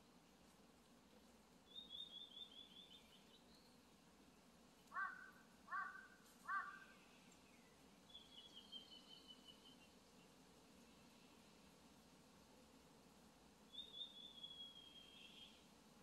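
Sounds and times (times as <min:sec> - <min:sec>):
harsh bird calls: 0:04.9 - 0:07.0.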